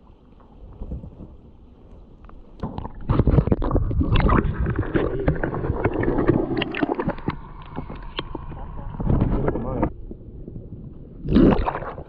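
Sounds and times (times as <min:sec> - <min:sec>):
water sloshing and splashing: 0:02.5 - 0:09.9, 0:11.2 - 0:12.0.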